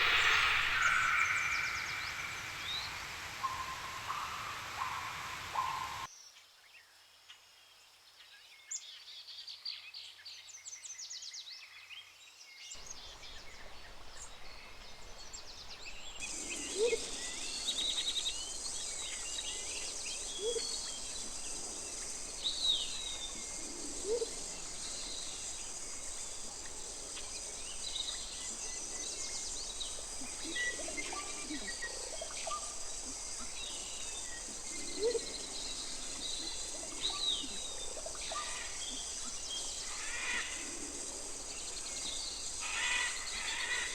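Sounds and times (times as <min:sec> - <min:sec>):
birds chirping and trilling: 0:00.0 - 0:06.1, 0:12.8 - 0:43.9
low rising bird call: 0:00.0 - 0:06.1
steady high hiss: 0:00.0 - 0:06.1, 0:12.8 - 0:43.9.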